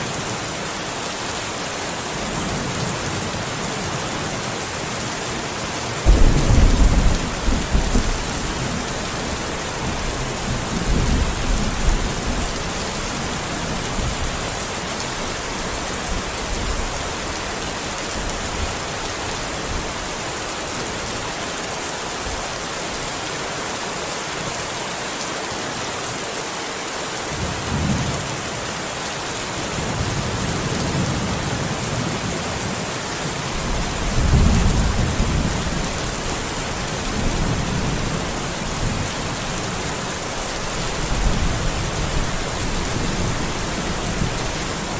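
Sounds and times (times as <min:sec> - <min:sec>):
steady rain: 0:00.0 - 0:44.9
thunder rumbling: 0:06.0 - 0:14.3, 0:33.6 - 0:44.9.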